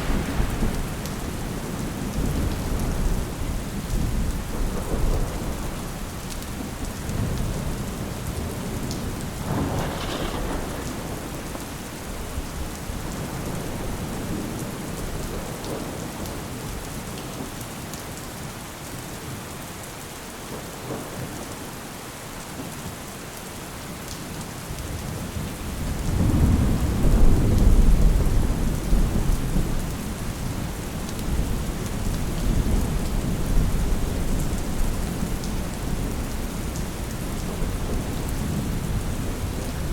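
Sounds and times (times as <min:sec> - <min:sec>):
thunder rolling: 0:00.0 - 0:05.7, 0:09.1 - 0:15.8
steady rain falling: 0:00.0 - 0:39.9.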